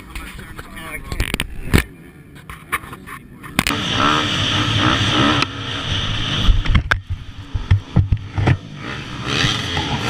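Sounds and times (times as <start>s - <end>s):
dirt bike engine running hard: 3.5s - 10.0s
loud rushing noise: 3.7s - 10.0s.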